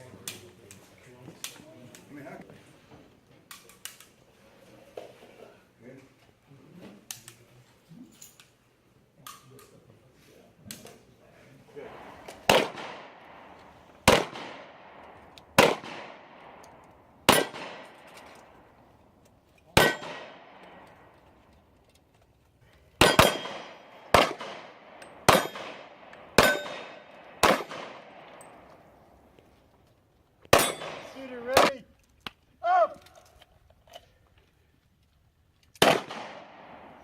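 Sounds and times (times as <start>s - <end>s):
gunshots: 11.8s - 16.6s, 17.2s - 18.4s, 19.8s - 20.9s, 23.0s - 28.5s, 30.5s - 31.8s, 35.8s - 37.0s.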